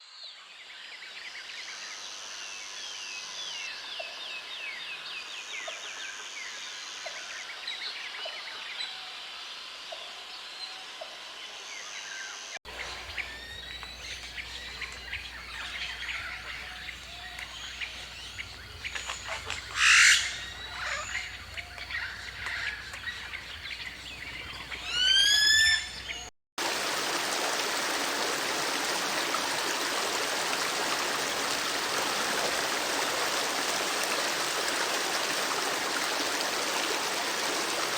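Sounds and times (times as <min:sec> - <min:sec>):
running water rushing: 0:12.7 - 0:25.8, 0:26.6 - 0:37.9
birds calling and singing: 0:12.7 - 0:27.0.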